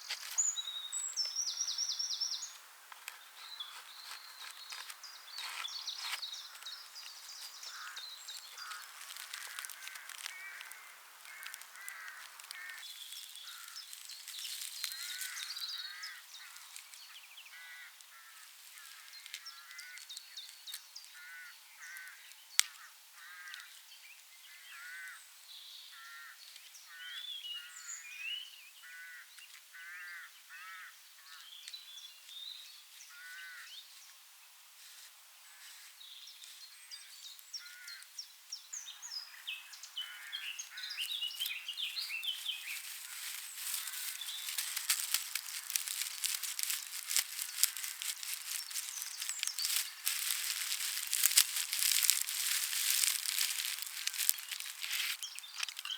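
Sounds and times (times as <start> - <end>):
birds calling: 0.0 - 20.0, 38.8 - 55.9
straw crackling and rustling: 2.9 - 17.0, 40.3 - 55.9.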